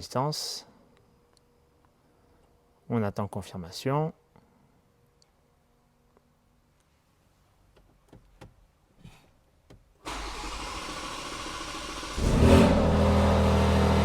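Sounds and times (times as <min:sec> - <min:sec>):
starter cranking engine: 0:10.1 - 0:12.4.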